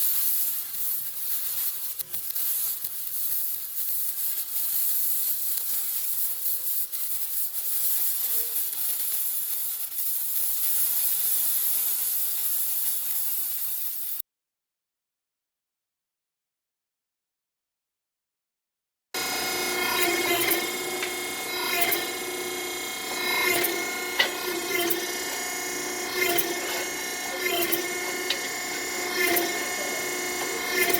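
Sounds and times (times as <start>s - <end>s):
small crackles and flutters: 0.0s - 14.2s
steady high hiss: 20.1s - 30.9s.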